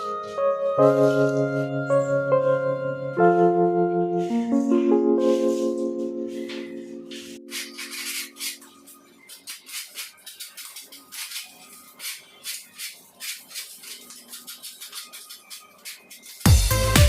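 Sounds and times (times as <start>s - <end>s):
hand tool scraping plaster wall: 7.2s - 8.7s, 9.3s - 16.5s.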